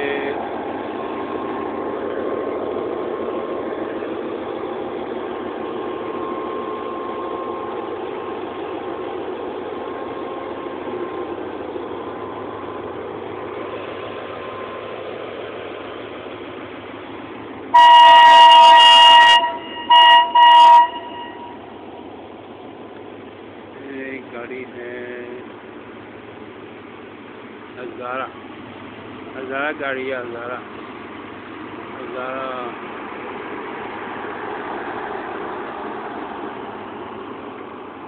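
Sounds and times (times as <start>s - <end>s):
train coaches rolling past: 0.0s - 38.0s
train horn blasts: 17.7s - 21.7s.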